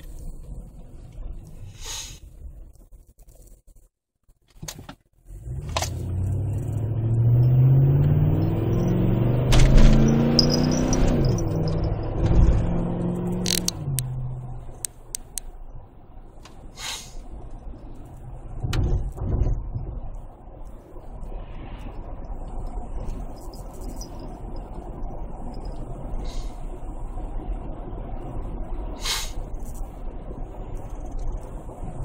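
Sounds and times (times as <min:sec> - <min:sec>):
engine exhaust revving: 0:05.3 - 0:15.4
sharp clicks: 0:13.3 - 0:14.1, 0:14.8 - 0:15.5.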